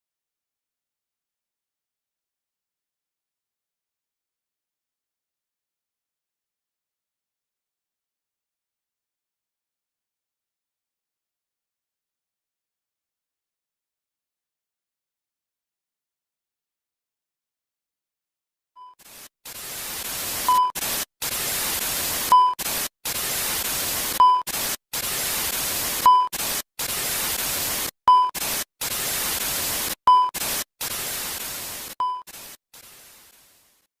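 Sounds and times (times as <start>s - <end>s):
tv static hiss: 19.0s - 33.9s
short beeps: 20.5s - 20.8s, 22.3s - 22.6s, 24.2s - 24.5s, 26.0s - 26.4s, 28.1s - 28.4s, 30.1s - 30.4s, 32.0s - 32.3s.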